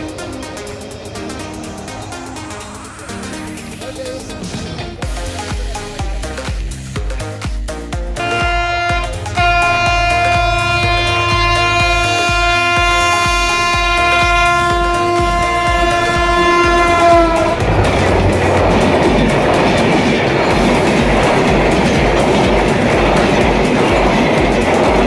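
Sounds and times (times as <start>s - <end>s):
train coaches rushing past: 0.0s - 25.0s
locomotive horn: 8.2s - 20.0s.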